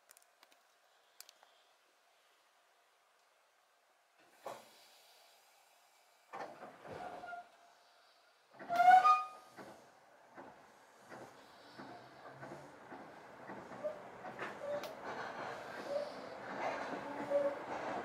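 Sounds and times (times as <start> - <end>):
brake squeal: 8.6 - 9.6
train clunk: 8.6 - 18.0
train running-gear noise: 8.6 - 18.0.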